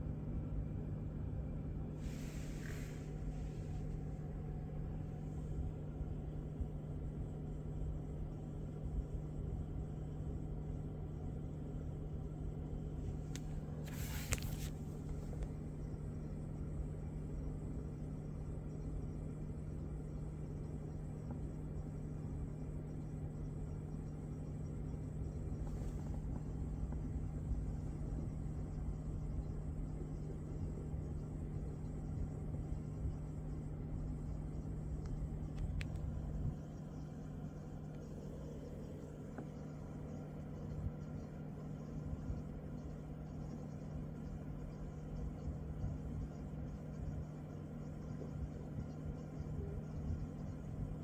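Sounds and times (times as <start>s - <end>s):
air conditioning hum: 0.0s - 51.0s
short hiss: 2.0s - 3.9s, 13.8s - 15.2s
click: 13.3s - 13.6s, 35.0s - 36.2s.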